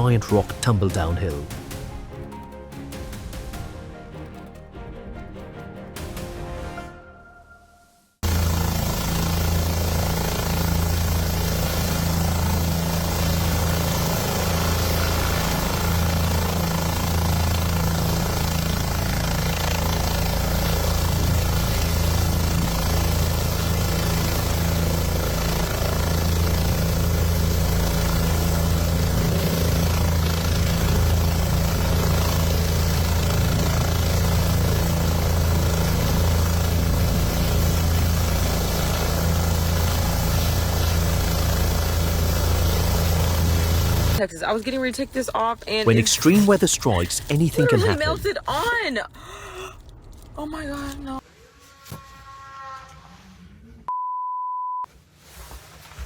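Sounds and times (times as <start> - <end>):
low mechanical engine drone: 8.2 - 44.2.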